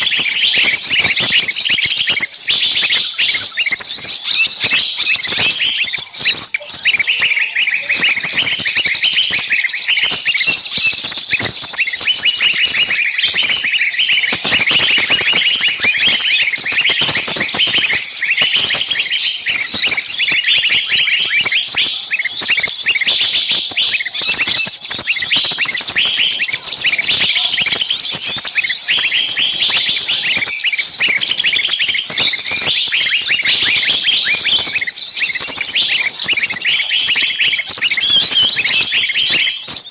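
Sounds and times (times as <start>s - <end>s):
songbirds chattering chorus: 0.0s - 39.9s.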